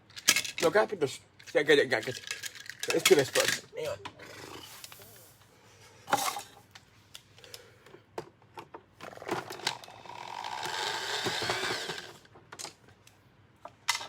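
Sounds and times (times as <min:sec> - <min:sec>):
small motor whirring: 0:09.1 - 0:12.2.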